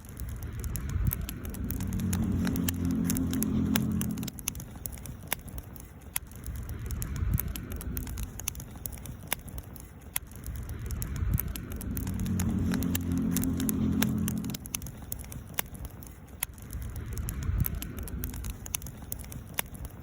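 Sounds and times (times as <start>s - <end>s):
campfire crackling and popping: 0.0s - 20.0s
low steady hum: 0.0s - 20.0s.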